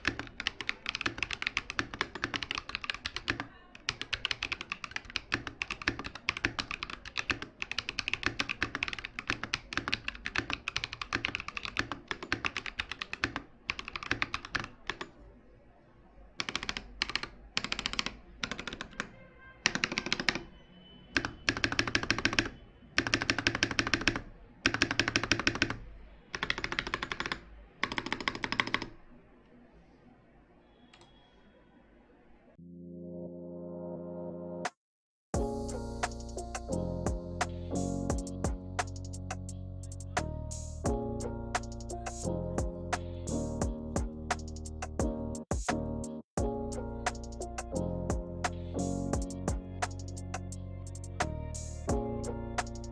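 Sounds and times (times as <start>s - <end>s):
mechanical keyboard typing: 0.0s - 15.2s, 16.4s - 20.5s, 21.2s - 29.0s.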